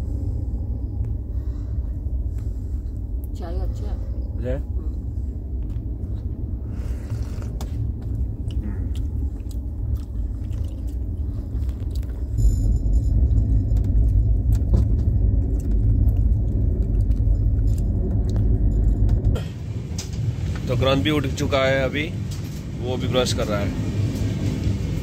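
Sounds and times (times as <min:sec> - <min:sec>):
train wheels rumbling on track: 0:12.3 - 0:25.0.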